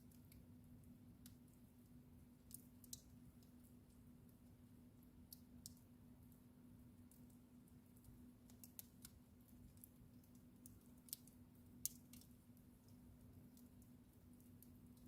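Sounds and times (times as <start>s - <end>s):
wood fire popping and snapping: 0.0s - 15.0s.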